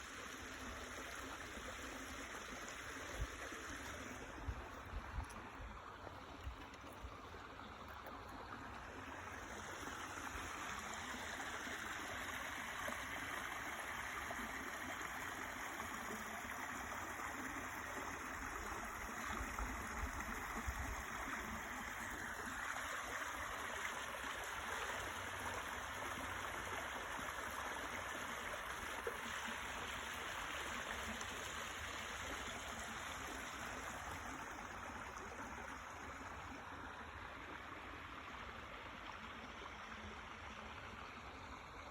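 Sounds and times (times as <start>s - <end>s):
water flowing over rocks: 0.0s - 41.9s.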